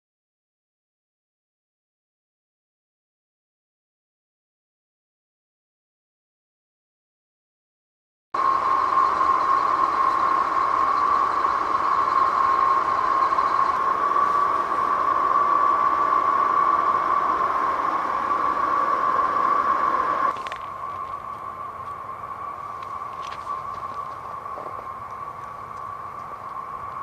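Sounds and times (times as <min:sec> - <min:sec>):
machine with high whine: 0:08.4 - 0:27.0.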